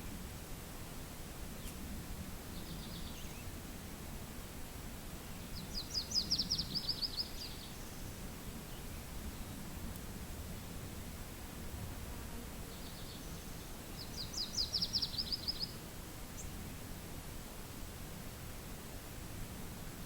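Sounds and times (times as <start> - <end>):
low rumble of wind: 0.0 - 20.0
songbird trilling: 14.0 - 15.8.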